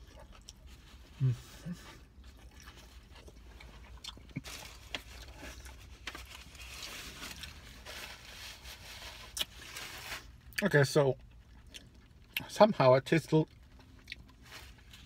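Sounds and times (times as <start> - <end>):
person chewing: 0.0 - 7.6, 9.2 - 9.7, 11.2 - 12.5, 13.5 - 15.0.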